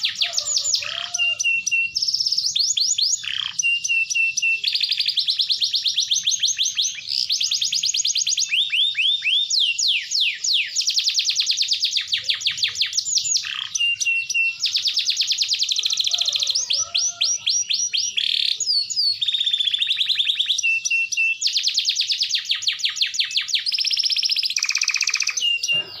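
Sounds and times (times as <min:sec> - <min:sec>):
canary singing trills: 0:00.0 - 0:26.0.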